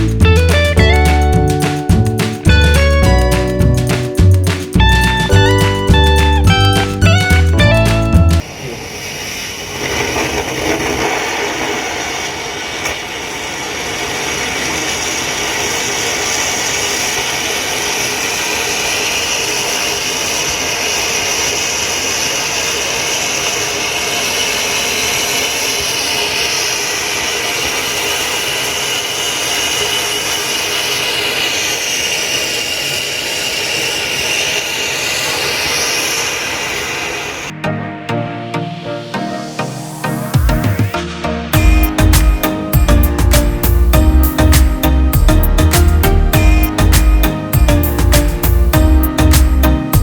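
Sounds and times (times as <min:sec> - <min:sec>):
rocket engine roaring: 0:08.4 - 0:37.6.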